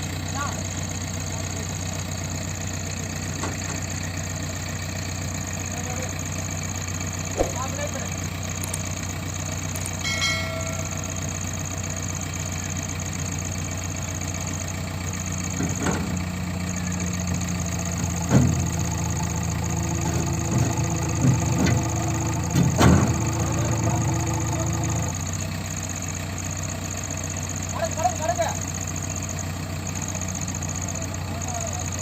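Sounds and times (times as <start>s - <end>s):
diesel engine revving: 0.0s - 32.0s
sharp metallic clunks: 7.4s - 8.0s, 10.0s - 11.2s.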